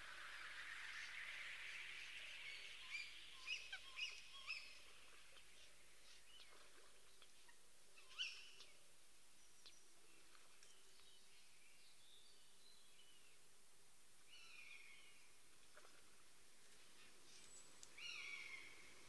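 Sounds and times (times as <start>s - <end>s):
small birds chirping: 0.0s - 13.5s, 16.9s - 19.0s
soft hiss: 0.0s - 19.0s.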